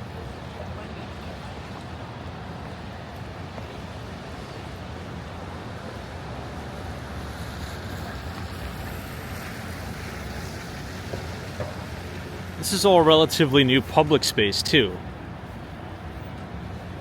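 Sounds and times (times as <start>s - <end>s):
low traffic rumble: 0.0s - 17.0s.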